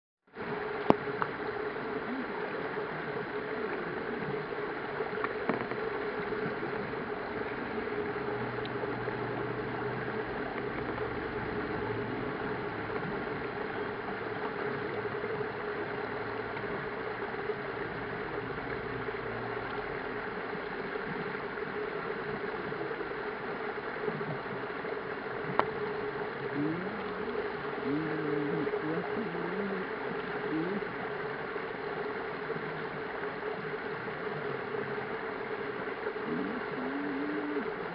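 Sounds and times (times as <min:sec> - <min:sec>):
low steady hum: 0:00.3 - 0:37.9
faint clicks: 0:00.8 - 0:01.4, 0:05.0 - 0:08.9, 0:09.9 - 0:11.8, 0:19.5 - 0:19.9, 0:20.5 - 0:31.0
faint voices: 0:26.2 - 0:31.3, 0:36.1 - 0:37.9.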